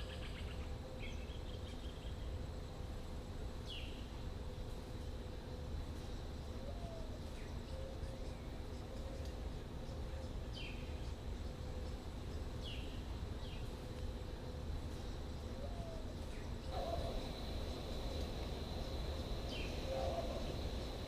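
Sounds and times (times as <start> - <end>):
wind: 0.0 - 21.0
birds chirping: 5.9 - 21.0
surf rumble: 16.7 - 21.0.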